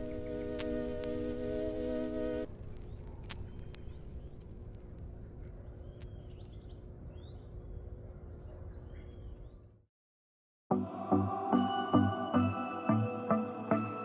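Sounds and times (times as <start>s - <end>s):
birds chirping: 0.0s - 9.8s.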